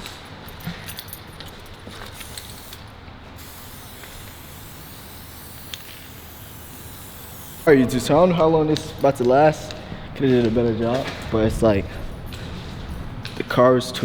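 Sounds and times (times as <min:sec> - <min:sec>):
spray-paint can hissing: 0:02.1 - 0:08.1.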